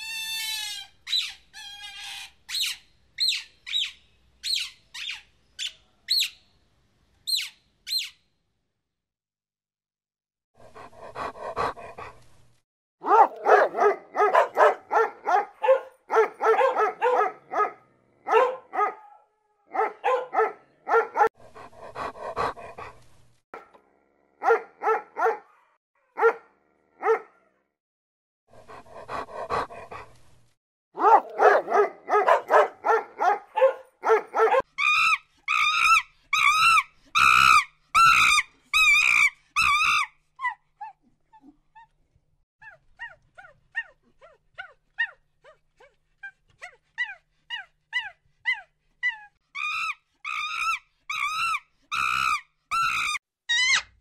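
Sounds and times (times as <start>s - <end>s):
dog barking rapidly: 13.0s - 21.3s, 24.4s - 27.3s, 31.0s - 34.7s
dog yipping: 13.0s - 21.3s, 24.4s - 26.4s, 31.0s - 41.5s, 42.6s - 45.6s.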